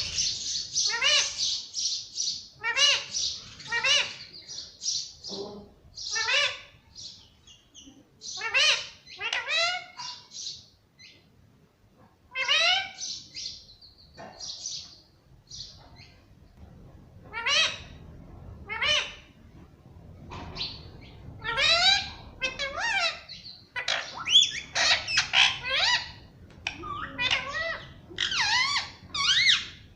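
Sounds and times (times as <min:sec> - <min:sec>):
parakeet chirping and squawking: 0:00.0 - 0:05.1, 0:06.0 - 0:07.2, 0:08.2 - 0:10.6, 0:12.3 - 0:13.6, 0:17.3 - 0:18.0, 0:18.6 - 0:19.4, 0:20.3 - 0:29.9.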